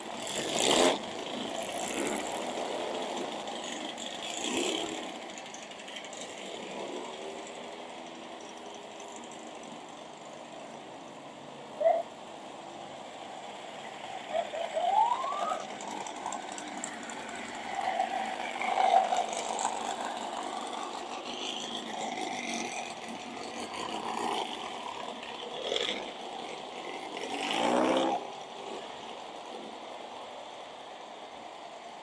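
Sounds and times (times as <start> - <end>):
car engines driving past: 0.0 - 31.6
loud engine rev: 0.1 - 3.6, 27.2 - 28.9.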